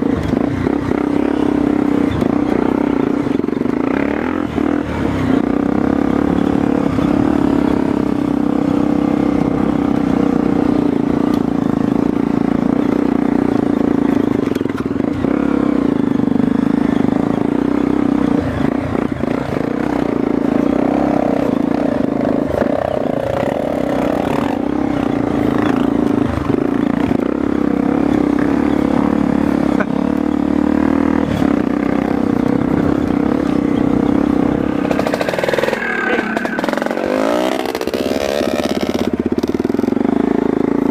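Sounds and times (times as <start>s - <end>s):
motorcycle engine running: 0.0s - 40.9s
knocks and rattles: 32.4s - 38.4s.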